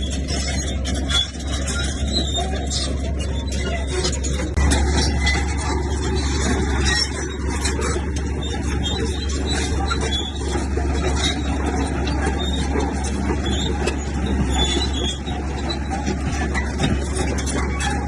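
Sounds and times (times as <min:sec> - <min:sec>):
diesel machine engine drone: 0:00.0 - 0:18.0.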